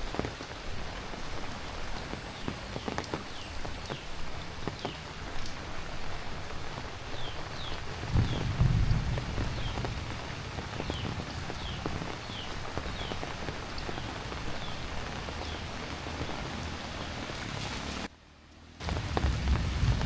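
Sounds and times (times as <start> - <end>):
heavy rain pattering: 0.0 - 20.0
low rumble: 18.8 - 20.0.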